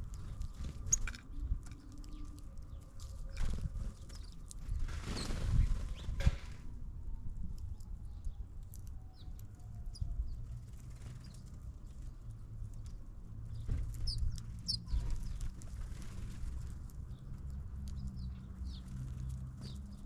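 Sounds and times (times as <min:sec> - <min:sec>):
small birds chirping: 0:00.0 - 0:06.2, 0:07.5 - 0:20.0
bird wings fluttering: 0:03.3 - 0:06.5, 0:14.9 - 0:16.7.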